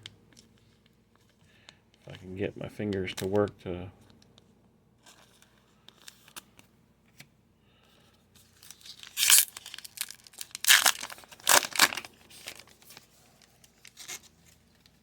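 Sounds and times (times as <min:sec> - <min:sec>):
plastic sleeve crinkling: 0:08.4 - 0:15.0.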